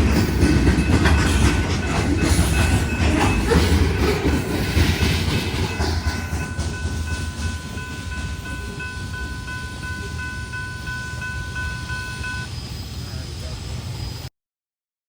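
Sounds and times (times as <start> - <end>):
train rumbling past: 0.0 - 14.3
high ringing tone repeating: 5.8 - 12.6.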